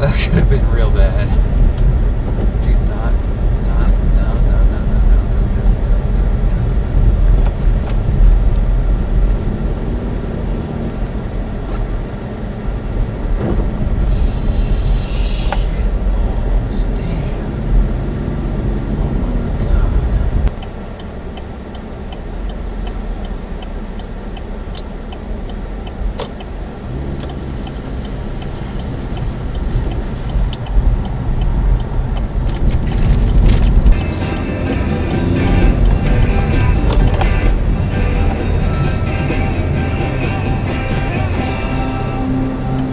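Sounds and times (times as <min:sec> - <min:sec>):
car engine and road rumble: 0:00.0 - 0:42.9.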